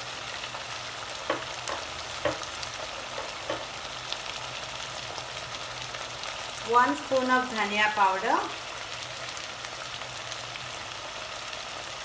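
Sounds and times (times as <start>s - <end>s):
vegetables sizzling in oil: 0.0s - 12.0s
spoon knocking against a pan: 1.2s - 3.8s.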